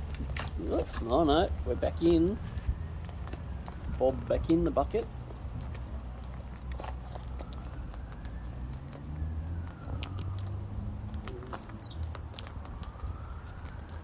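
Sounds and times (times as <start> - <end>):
steady low rumble: 0.0 - 8.9
beak cracking seeds: 0.0 - 14.0.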